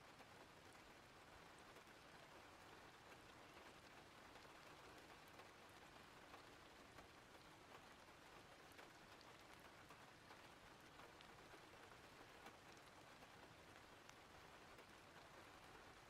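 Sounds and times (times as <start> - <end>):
soft raindrop ticks: 0.0 - 16.0.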